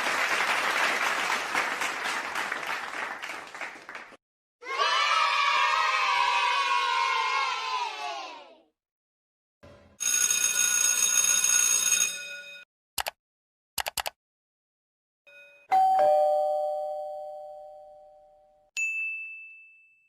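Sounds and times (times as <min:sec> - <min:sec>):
sharp clicks: 0:13.8 - 0:14.2
bright steady ringing tone: 0:15.3 - 0:20.0
two-note doorbell ding-dong: 0:15.3 - 0:20.0.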